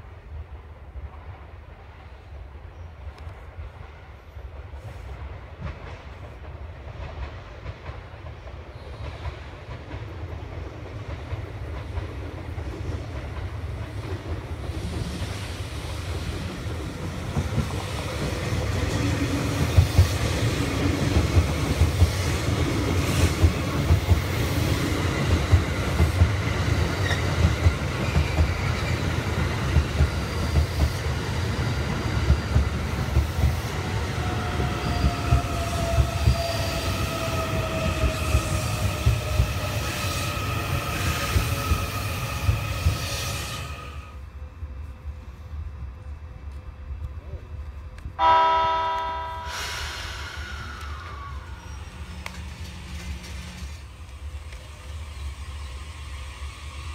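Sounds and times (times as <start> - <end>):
train wheels rumbling on rail: 0.0 - 56.9
train whine falling in pitch: 48.2 - 53.5.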